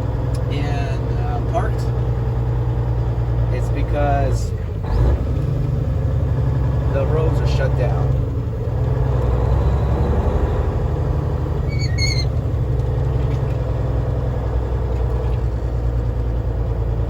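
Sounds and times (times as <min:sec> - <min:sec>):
truck diesel engine drone: 0:00.0 - 0:17.0
high squeak: 0:11.6 - 0:12.4.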